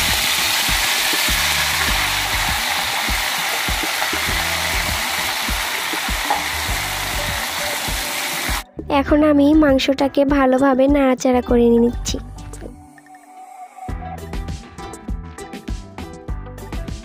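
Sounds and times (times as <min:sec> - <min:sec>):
chicken sizzling in oil: 0:00.0 - 0:08.6.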